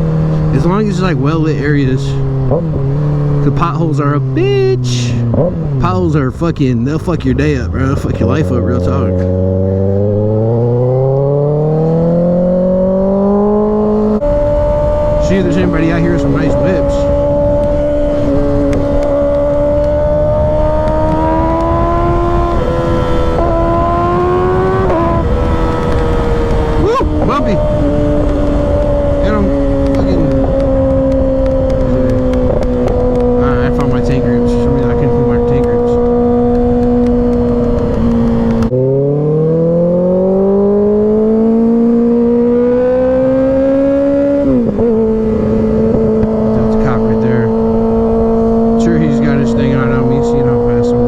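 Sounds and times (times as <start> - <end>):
motorcycle engine running: 0.0 - 51.0
wind rush on microphone: 11.8 - 38.8, 40.4 - 51.0.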